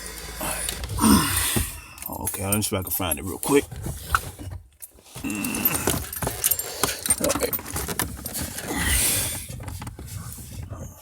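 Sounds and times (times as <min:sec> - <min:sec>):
rustling handling noise: 0:00.0 - 0:11.0
small metal objects jingling: 0:01.8 - 0:03.7, 0:04.8 - 0:09.3.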